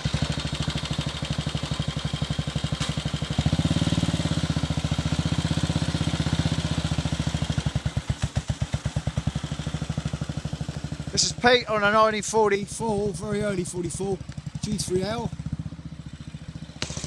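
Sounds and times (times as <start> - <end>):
motorcycle engine thumping: 0.0 - 3.7, 7.4 - 17.0.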